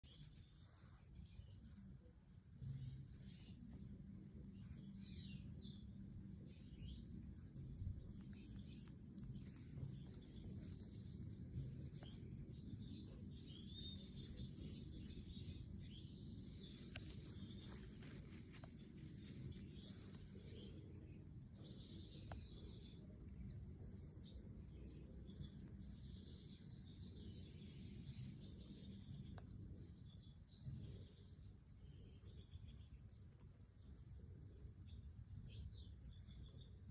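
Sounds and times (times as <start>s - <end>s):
steady low hum: 0.4s - 36.9s
goldfinches chirping and twittering: 6.7s - 16.2s.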